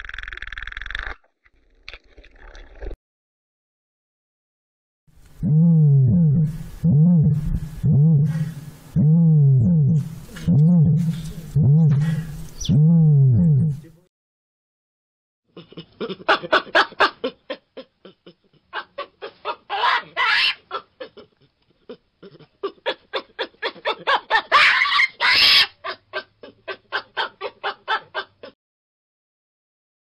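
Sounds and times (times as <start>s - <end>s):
baboons calling: 19.7s - 20.6s, 24.5s - 25.8s
harsh baboon outbursts: 19.7s - 20.6s, 24.5s - 25.7s.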